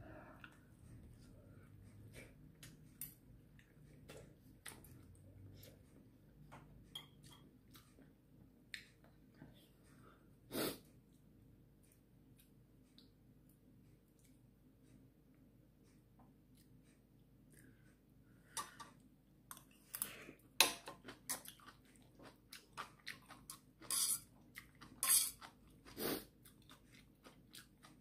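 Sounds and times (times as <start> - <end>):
slurp or sniff: 10.5 - 10.8, 25.9 - 26.3.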